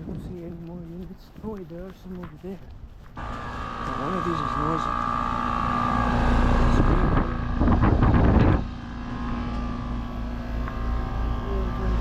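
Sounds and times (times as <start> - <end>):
air conditioner compressor hum: 3.2 - 12.0.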